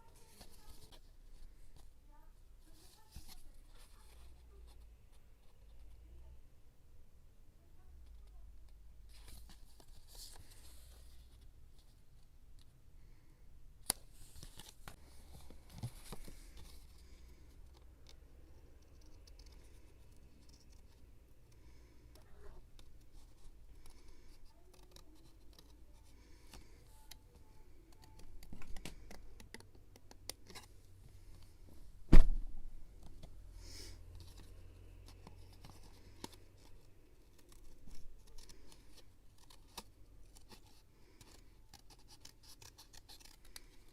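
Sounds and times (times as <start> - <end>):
scratchy paper sounds: 0.0 - 1.1, 2.6 - 4.8, 21.7 - 30.7, 33.7 - 43.9
paper rustling: 0.0 - 1.6, 34.2 - 43.9.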